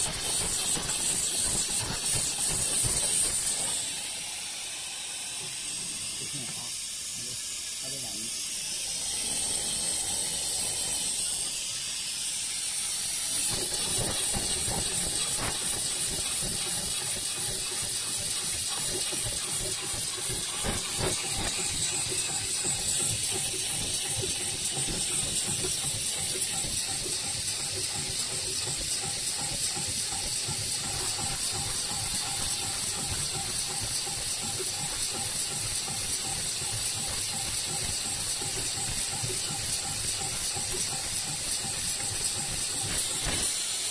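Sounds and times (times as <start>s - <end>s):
sewing machine clatter: 0.0s - 4.0s, 13.4s - 43.7s.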